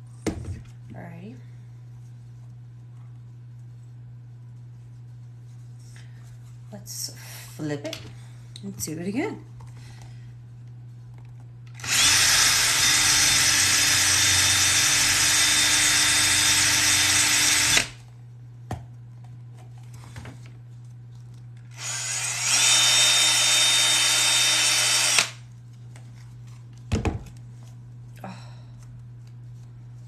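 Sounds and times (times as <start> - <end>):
electric drill boring through leather: 11.8 - 18.0, 21.7 - 25.4.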